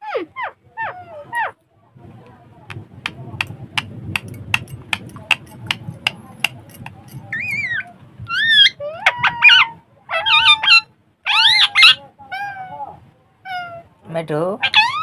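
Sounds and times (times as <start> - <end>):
parrot squawking: 10.1 - 12.5, 14.6 - 15.0.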